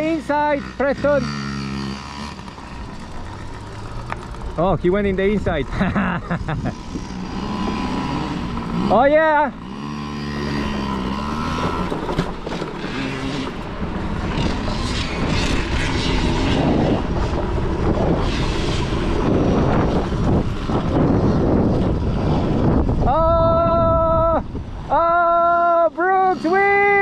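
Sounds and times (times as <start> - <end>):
dirt bike engines revving: 0.0 - 27.0
wind noise: 0.9 - 27.0
person shouting: 23.0 - 27.0.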